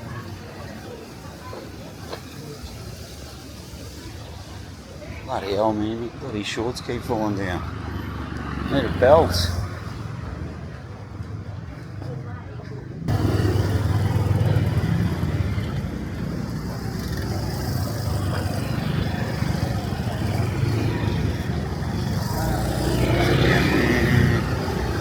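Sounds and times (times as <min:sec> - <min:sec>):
passing traffic rumble: 0:00.0 - 0:25.0.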